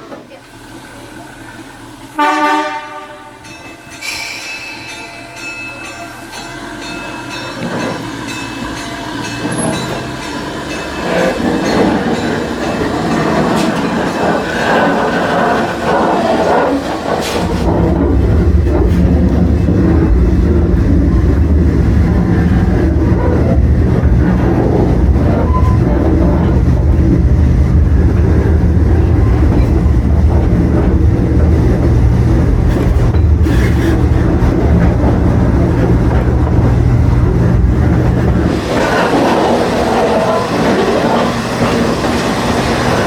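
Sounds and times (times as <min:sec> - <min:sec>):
train wheels clattering over track: 0:00.0 - 0:43.0
deep steady rumble: 0:17.4 - 0:40.1.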